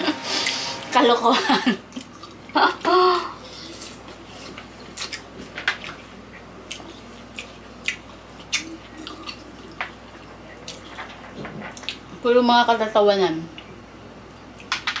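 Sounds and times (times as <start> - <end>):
wet juicy chewing: 3.4 - 11.1.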